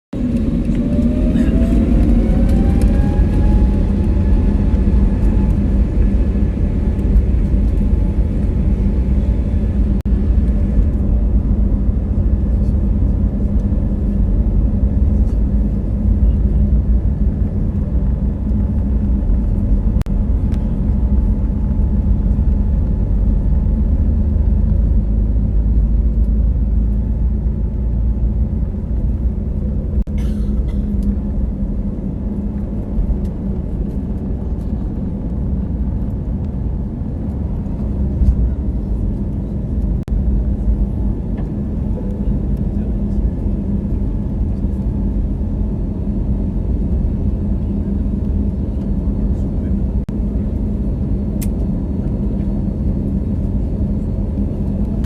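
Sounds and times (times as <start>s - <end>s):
jet engines spooling up: 0.2s - 12.8s.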